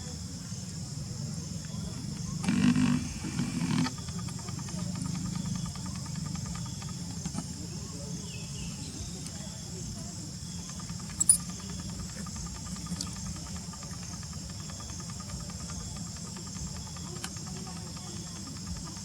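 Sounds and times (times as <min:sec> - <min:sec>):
insect chorus: 0:00.0 - 0:19.0
sharp click: 0:11.1 - 0:11.5.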